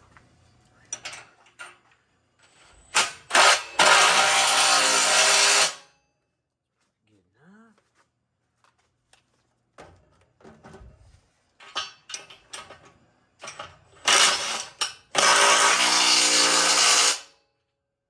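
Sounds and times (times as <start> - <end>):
handheld power tool running: 2.9 - 5.8, 14.0 - 17.3
metal parts clanking: 11.6 - 17.2.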